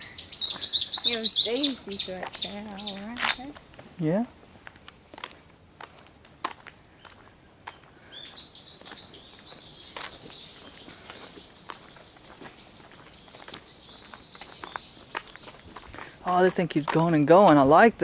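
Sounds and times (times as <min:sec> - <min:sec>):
bird singing rapid chirps: 0:00.0 - 0:03.0, 0:08.2 - 0:16.0.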